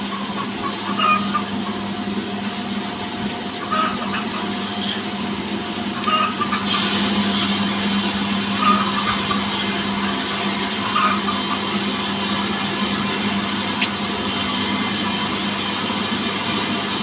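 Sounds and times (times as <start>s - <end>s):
broad hissing noise: 6.6s - 17.0s.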